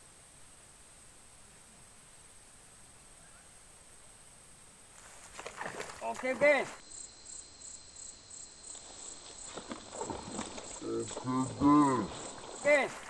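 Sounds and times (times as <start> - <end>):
insect chirring: 0.0 - 13.0.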